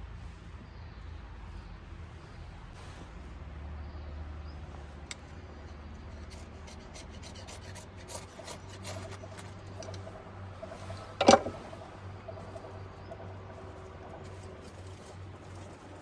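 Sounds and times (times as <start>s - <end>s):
wood scraping and rubbing: 5.6s - 16.0s.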